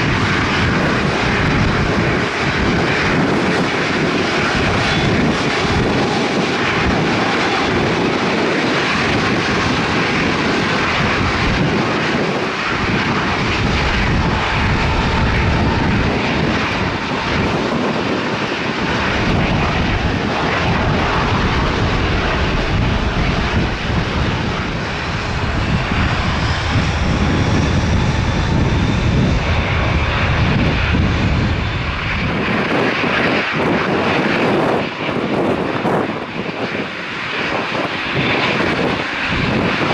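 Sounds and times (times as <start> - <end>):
high engine whine: 0.0 - 39.9
jet engines roaring: 0.0 - 39.9.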